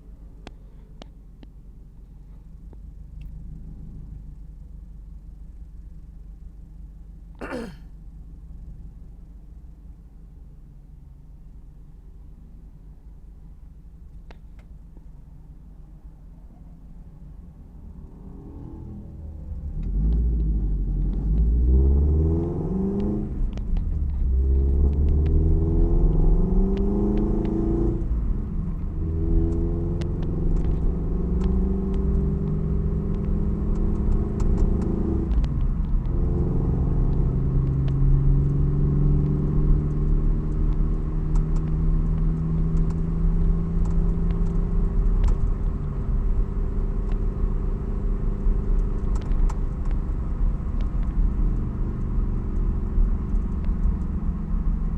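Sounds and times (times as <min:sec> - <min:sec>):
boxer engine rumble accelerating: 0:15.9 - 0:54.9.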